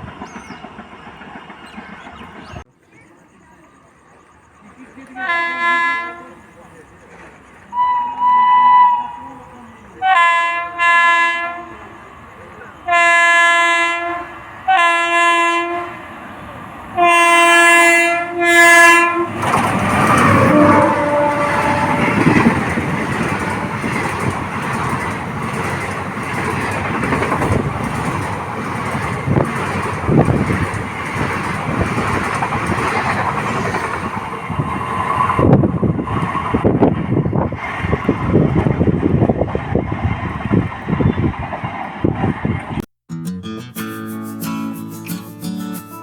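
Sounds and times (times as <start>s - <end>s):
train wheels rumbling on rails: 0.0s - 3.0s, 4.2s - 42.8s
locomotive horn blasts: 5.1s - 6.4s, 7.7s - 12.0s, 12.8s - 16.0s, 17.0s - 22.9s.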